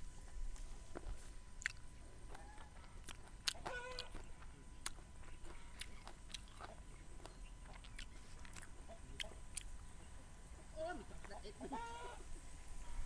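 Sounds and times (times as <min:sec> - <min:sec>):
person chewing crisp vegetables: 0:00.6 - 0:09.9.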